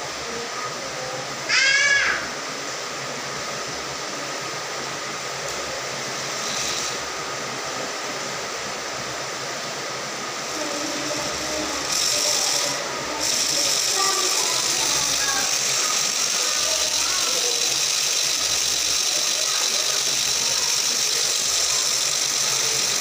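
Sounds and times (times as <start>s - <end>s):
small electric motor whirring: 6.1s - 7.1s, 10.4s - 23.0s.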